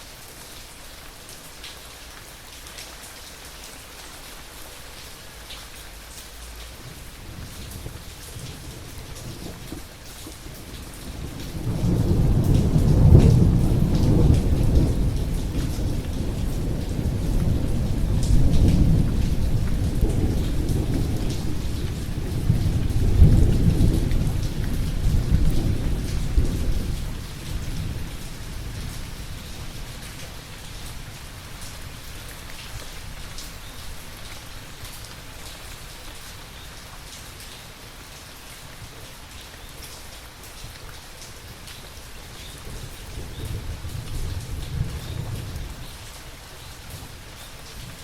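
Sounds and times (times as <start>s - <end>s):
steady rain: 0.0s - 48.0s
deep roll of thunder: 7.2s - 29.0s.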